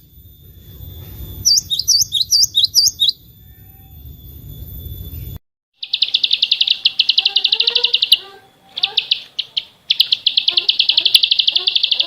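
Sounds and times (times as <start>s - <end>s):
lower bird chirps: 0.0s - 12.0s
songbird singing fast trills: 0.0s - 12.0s.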